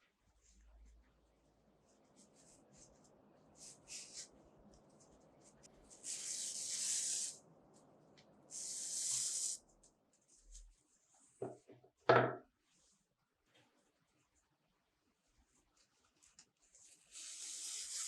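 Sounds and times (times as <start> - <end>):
long hissing: 5.9 - 7.4, 8.5 - 9.7.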